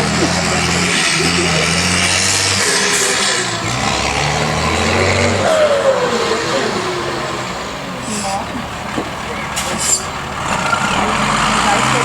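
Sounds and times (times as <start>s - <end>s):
falling whine: 0.0s - 9.1s
truck engine running hard: 0.0s - 12.0s.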